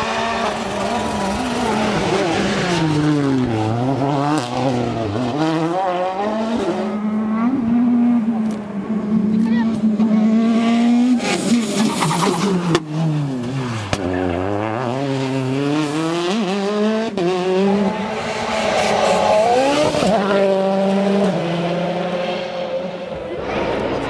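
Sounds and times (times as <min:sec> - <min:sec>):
rally car engine revving: 0:00.0 - 0:24.0
tires squealing: 0:11.2 - 0:15.4.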